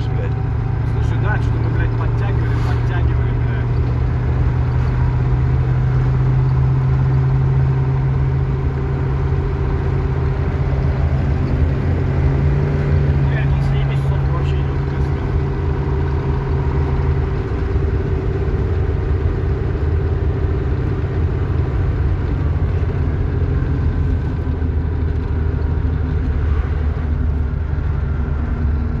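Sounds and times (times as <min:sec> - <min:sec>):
vehicle engine running loudly: 0:00.0 - 0:29.0.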